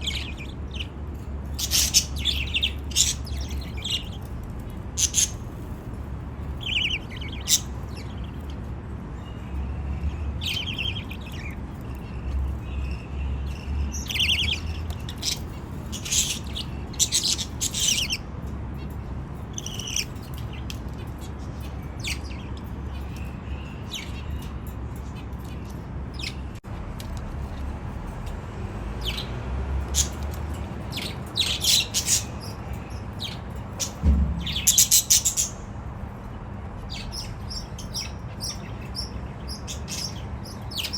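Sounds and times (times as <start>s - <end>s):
budgies chirping: 0.0s - 26.6s, 29.0s - 40.9s
steady low hum: 31.1s - 40.5s.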